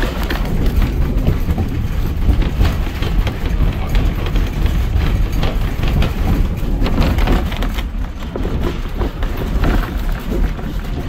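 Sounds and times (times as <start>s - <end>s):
clicks and knocks from wheels: 0.0s - 11.0s
train rumbling on track: 0.0s - 11.0s.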